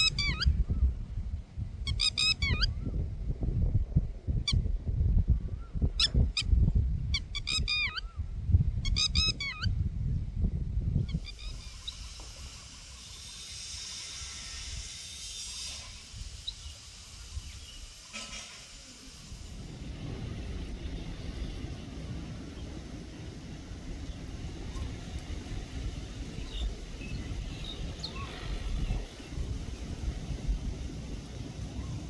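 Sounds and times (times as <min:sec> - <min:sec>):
steady high hiss: 0:11.2 - 0:32.0.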